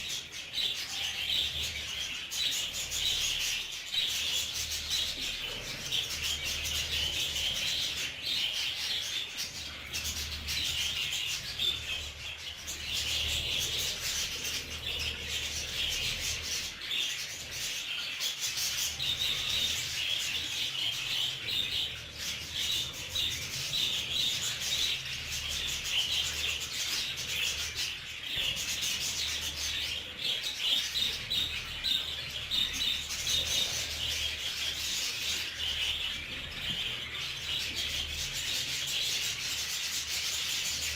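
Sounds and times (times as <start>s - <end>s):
budgerigars chattering and warbling: 0.0s - 40.9s.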